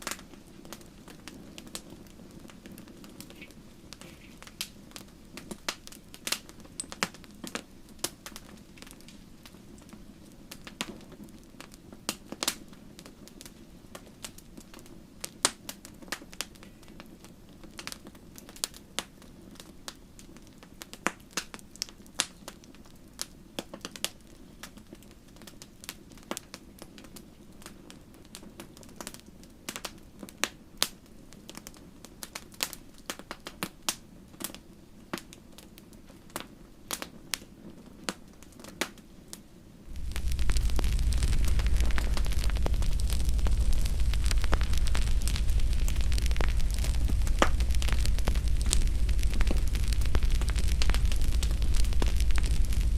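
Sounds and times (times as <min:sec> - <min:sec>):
wood fire crackling: 0:00.0 - 0:52.9
low rush of flame: 0:39.8 - 0:52.9.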